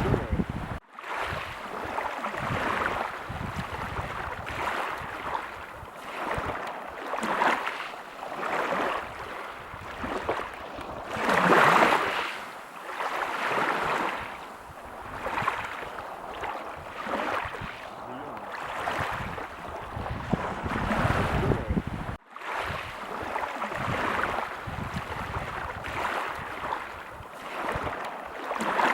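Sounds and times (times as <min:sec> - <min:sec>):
ocean surf breaking: 0:00.0 - 0:28.9.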